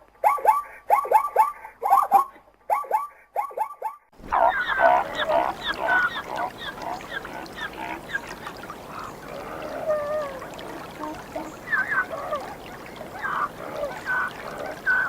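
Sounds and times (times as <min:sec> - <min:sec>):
zebras barking: 0:04.3 - 0:15.0.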